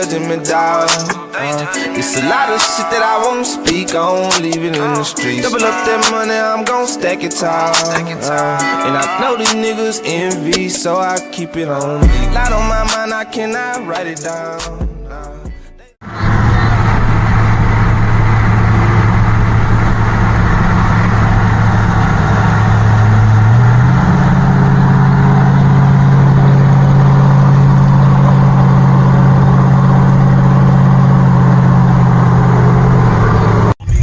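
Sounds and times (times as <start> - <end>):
truck engine running: 12.0 - 13.0, 16.0 - 34.0.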